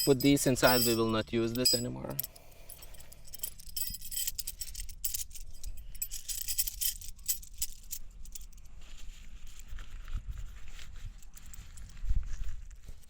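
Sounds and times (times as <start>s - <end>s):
metal tent pegs clinking: 0.0s - 8.6s.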